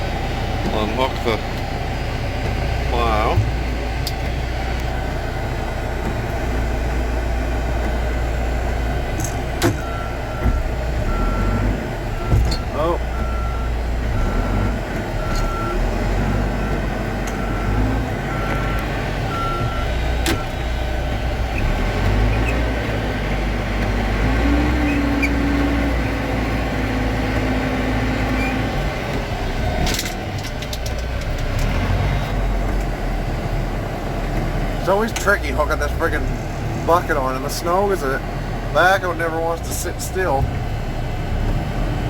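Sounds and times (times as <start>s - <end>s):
diesel engine running: 0.0s - 42.0s
reversing alarm beeping: 4.1s - 6.3s, 9.8s - 22.8s.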